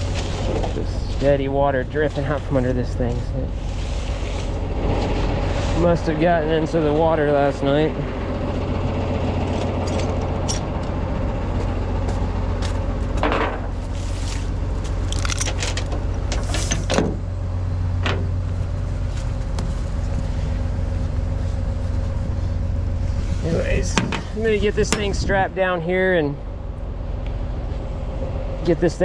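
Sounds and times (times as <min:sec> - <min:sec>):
truck engine idling: 0:00.0 - 0:29.0
metallic clinks and knocks: 0:09.5 - 0:10.8, 0:15.0 - 0:17.0.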